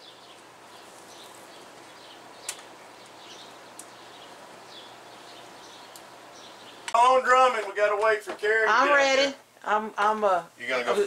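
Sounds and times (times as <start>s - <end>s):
small birds chirping: 0.0s - 7.0s
faint outdoor background: 0.0s - 11.0s.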